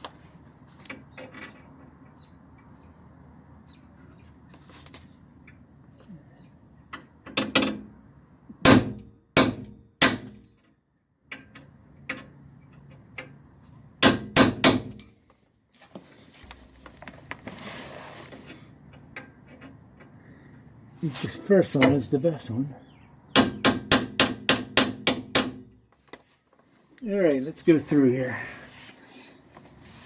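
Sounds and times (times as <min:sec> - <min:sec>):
hammer striking punch on steel: 0:08.6 - 0:10.4.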